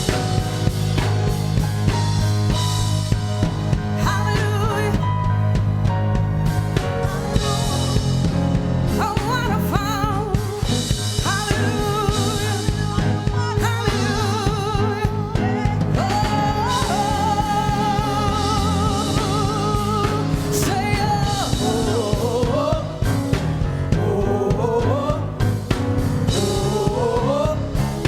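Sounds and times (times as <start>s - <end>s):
band with steady bass: 0.0s - 28.0s
person singing with vibrato: 7.4s - 25.6s, 26.3s - 28.0s.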